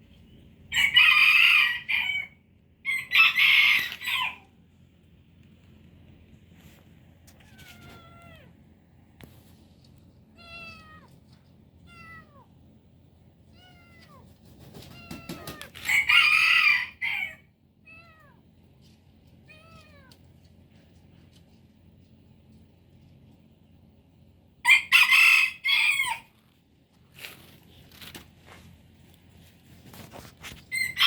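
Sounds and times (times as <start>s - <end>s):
rooster crowing: 0.7s - 4.5s, 15.4s - 17.5s, 24.6s - 26.4s, 30.7s - 31.0s
kitten meowing: 7.4s - 8.5s, 10.4s - 11.1s, 11.8s - 12.5s, 13.5s - 14.2s.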